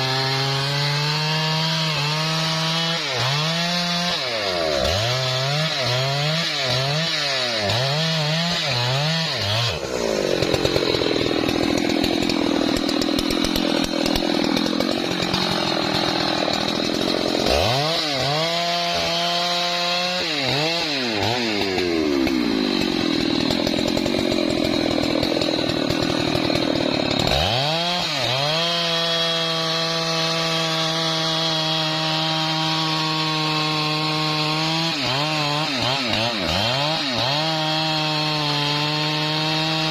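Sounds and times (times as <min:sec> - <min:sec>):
chainsaw revving and cutting wood: 0:00.0 - 0:39.9.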